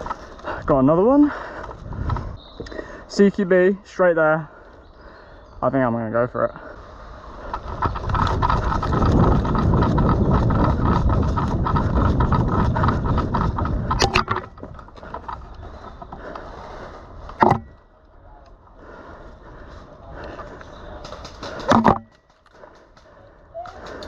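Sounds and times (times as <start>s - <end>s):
wind noise on camera: 1.7s - 2.6s, 7.4s - 16.2s.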